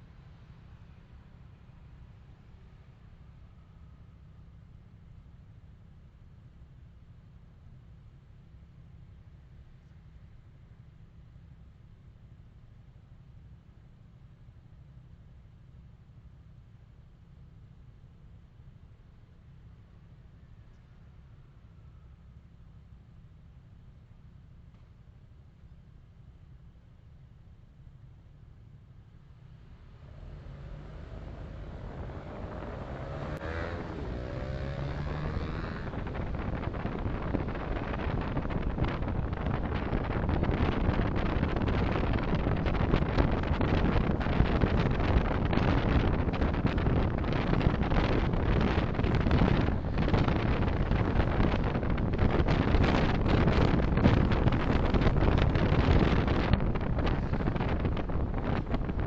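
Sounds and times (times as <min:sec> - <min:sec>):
road noise: 0:27.9 - 0:59.0
wind buffeting microphone: 0:29.9 - 0:59.0.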